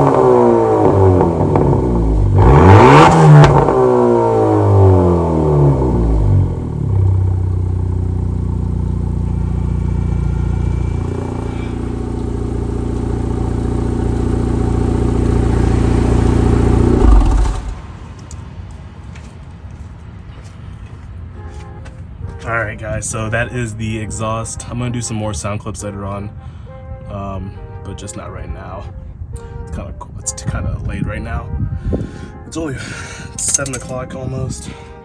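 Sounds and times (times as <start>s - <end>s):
car engine running: 0.0s - 17.9s.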